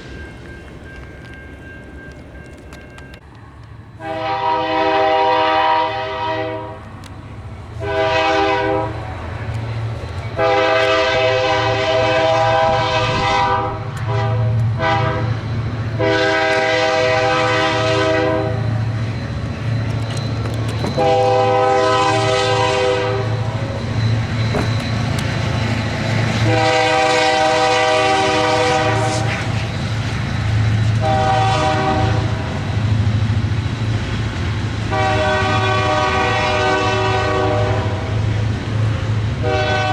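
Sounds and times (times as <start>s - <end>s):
train rumbling: 0.0s - 39.9s
locomotive air horn blasts: 4.0s - 6.9s, 7.8s - 9.3s, 10.4s - 18.8s, 20.8s - 23.6s, 25.2s - 29.6s, 31.0s - 32.6s, 34.9s - 38.2s, 39.4s - 39.9s.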